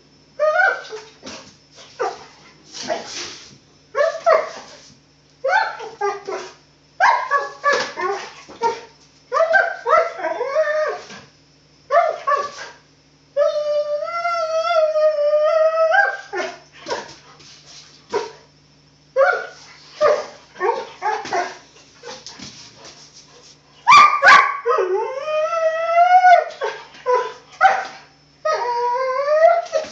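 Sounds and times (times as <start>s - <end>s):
dog yipping and whining: 5.4s - 11.2s, 11.9s - 12.7s, 19.2s - 22.2s, 23.9s - 29.9s.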